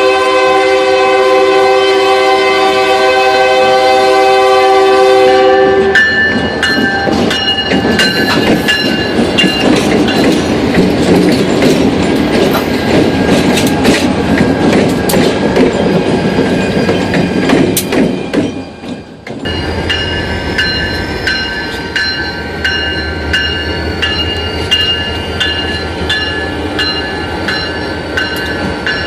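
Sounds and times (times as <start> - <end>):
locomotive air horn: 0.0 - 6.0
freight train wheels clacking: 5.9 - 29.0
train wheels squealing: 15.7 - 29.0.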